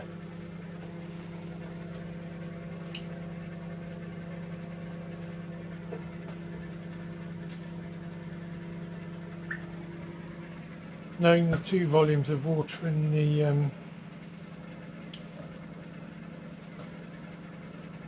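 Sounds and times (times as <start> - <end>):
low appliance hum: 0.0 - 18.0
water drops falling into buckets: 9.4 - 9.8.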